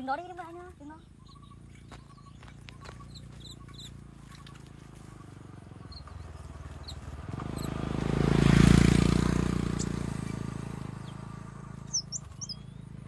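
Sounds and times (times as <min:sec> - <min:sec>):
faint bird chirps: 0:00.0 - 0:07.8, 0:09.6 - 0:13.0
motor vehicle engine approaching: 0:00.0 - 0:13.0.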